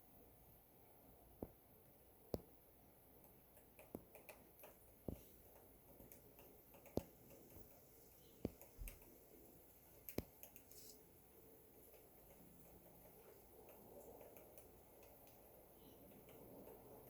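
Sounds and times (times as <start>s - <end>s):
sharp light clicks: 6.0s - 7.8s, 10.0s - 10.8s.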